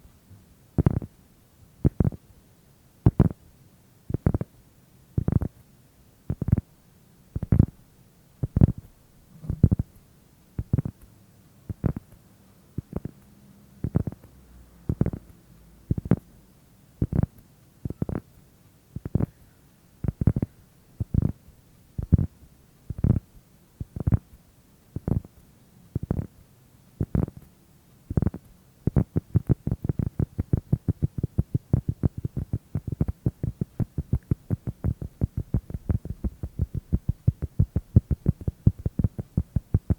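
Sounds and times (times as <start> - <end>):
soft dull tapping: 28.1 - 39.9.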